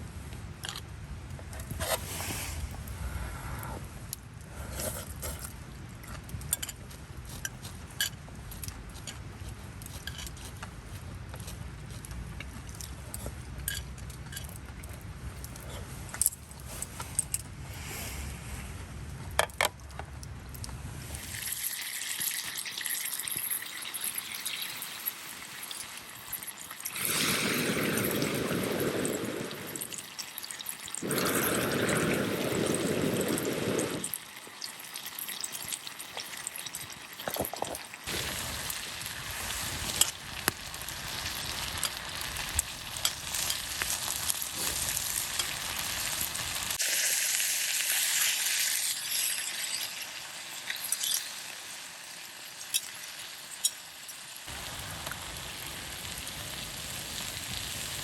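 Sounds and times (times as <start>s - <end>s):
meat sizzling in a pan: 21.2s - 37.2s, 38.1s - 58.0s.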